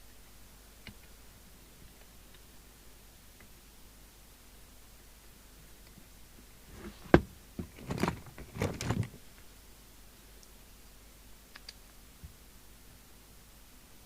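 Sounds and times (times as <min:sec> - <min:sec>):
tools clattering and rattling: 0:06.8 - 0:09.2
faint ticks: 0:11.5 - 0:12.4.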